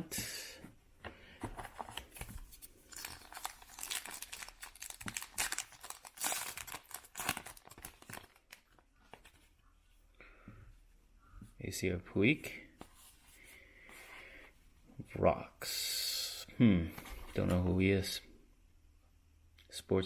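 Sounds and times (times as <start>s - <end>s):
foil wrapper tearing and crinkling: 2.8s - 8.8s.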